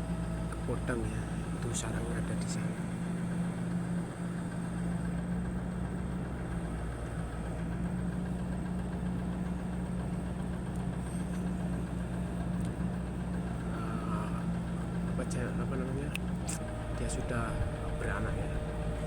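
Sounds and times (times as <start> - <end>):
idling motor hum: 0.0 - 19.0.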